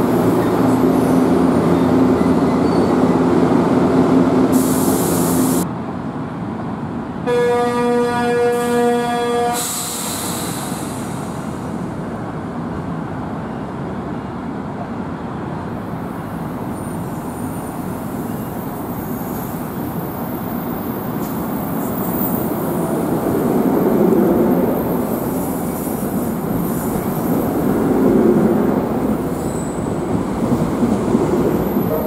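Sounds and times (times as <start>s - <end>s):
train coaches rolling rumble: 0.0s - 7.3s, 8.6s - 32.0s
train horn: 7.3s - 9.8s.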